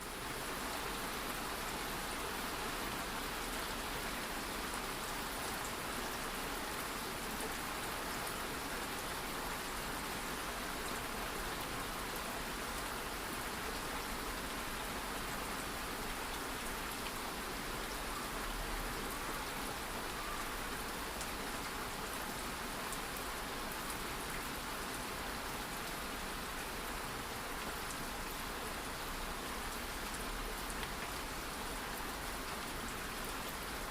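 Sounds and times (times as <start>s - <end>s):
light rain patter: 0.0s - 33.9s.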